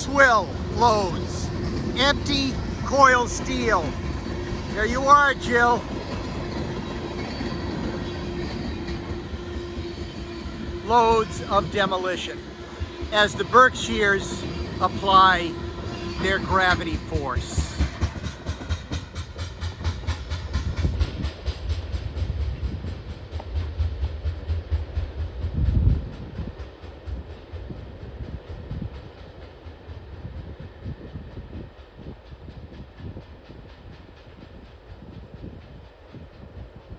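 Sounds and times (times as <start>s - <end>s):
freight train cars rolling: 0.0s - 36.9s
wheels clicking over rail joints: 14.2s - 30.0s.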